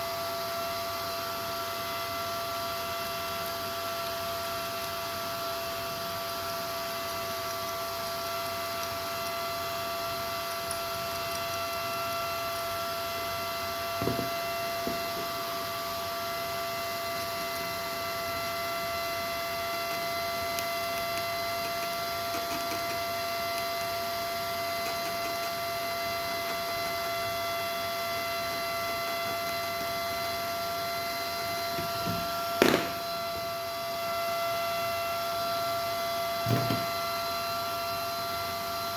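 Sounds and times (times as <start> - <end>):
steady electrical hum: 0.0 - 38.9
knock: 14.0 - 15.0, 36.5 - 36.9.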